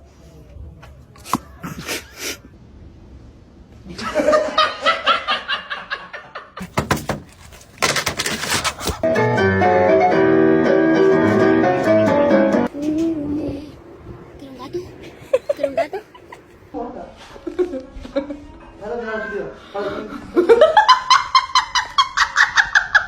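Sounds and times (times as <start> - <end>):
bursts of laughter: 3.9 - 6.6
music with held notes: 9.1 - 12.7.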